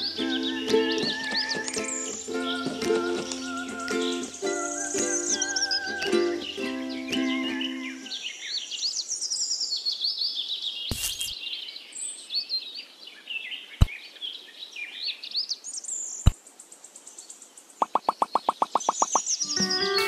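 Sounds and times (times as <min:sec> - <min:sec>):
small birds chirping: 0:00.0 - 0:20.0
sharp clicks: 0:17.8 - 0:19.3.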